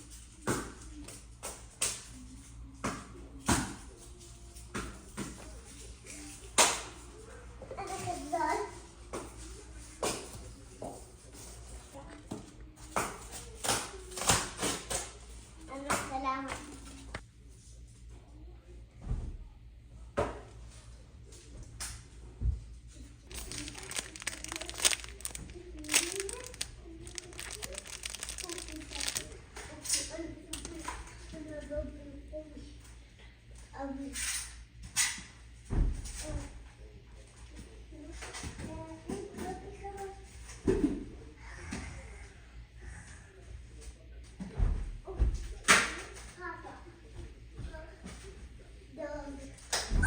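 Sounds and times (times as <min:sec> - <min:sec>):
hard objects clacking: 0:23.3 - 0:29.4
packaging crinkling: 0:23.3 - 0:29.4.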